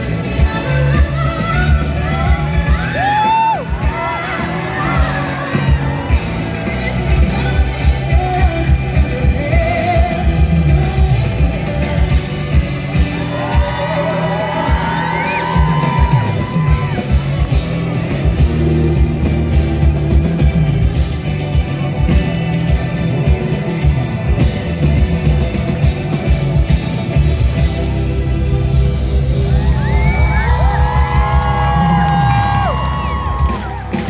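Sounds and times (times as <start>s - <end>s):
singer with vibrato: 0.0s - 16.2s
drum beat: 0.0s - 28.0s, 29.4s - 34.0s
heavy bass: 0.0s - 34.0s
live pop band over pa: 0.0s - 34.0s.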